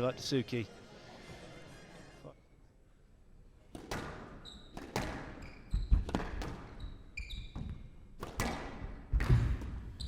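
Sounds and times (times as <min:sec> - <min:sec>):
squash ball cracking off rackets: 0:03.7 - 0:05.4, 0:08.1 - 0:09.8
shoes squeaking on court floor: 0:03.9 - 0:08.0, 0:09.1 - 0:10.0.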